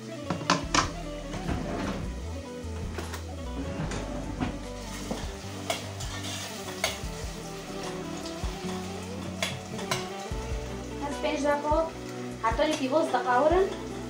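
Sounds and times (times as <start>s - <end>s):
food sizzling in a pot: 0.0s - 3.6s, 4.2s - 14.0s
metal spoon stirring: 4.8s - 10.3s.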